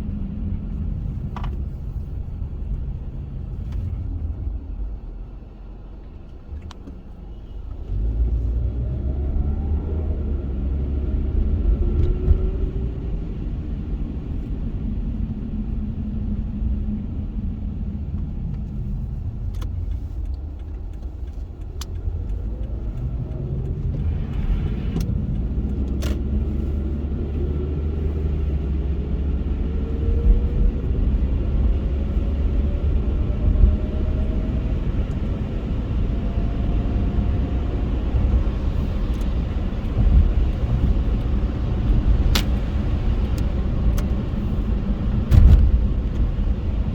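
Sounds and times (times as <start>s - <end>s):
road rumble: 0.0s - 46.9s.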